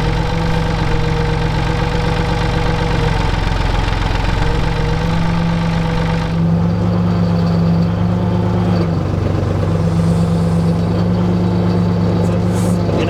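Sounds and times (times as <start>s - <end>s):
earth-moving machine engine running: 0.0s - 13.0s.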